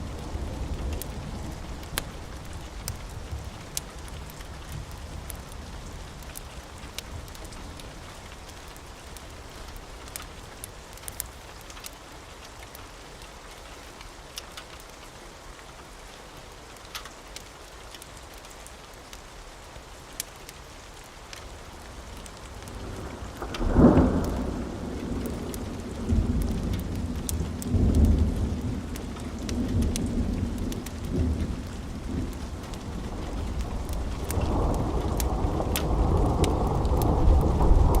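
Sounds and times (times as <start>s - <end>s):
steady rain: 0.0s - 38.0s
thunder rumbling: 22.5s - 38.0s.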